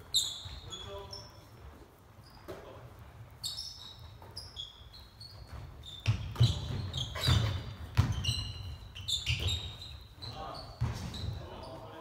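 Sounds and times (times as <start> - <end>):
sneakers squeaking: 0.0 - 12.0
basketball dribbling: 5.3 - 11.4.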